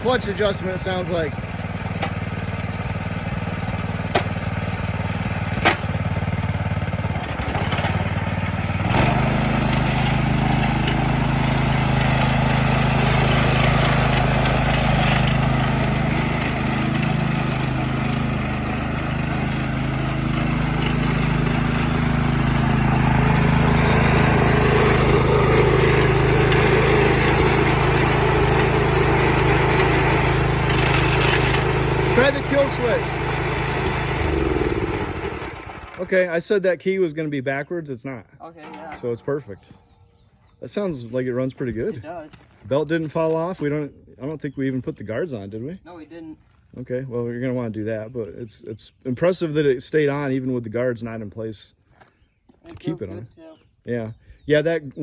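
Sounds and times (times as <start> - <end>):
garden tractor engine running: 0.0 - 36.5, 38.5 - 39.8.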